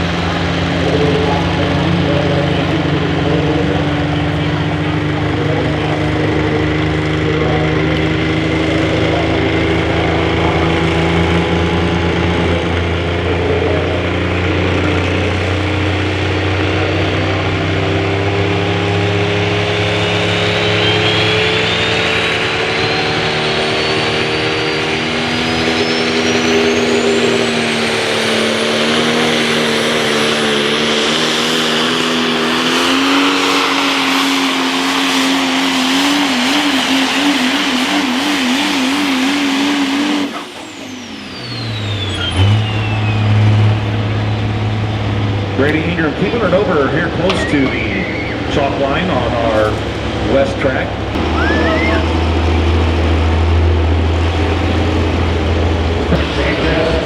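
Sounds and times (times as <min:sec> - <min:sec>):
diesel truck engine running hard: 0:00.0 - 0:57.0
thin high whine rising: 0:19.5 - 0:45.0, 0:51.2 - 0:53.4.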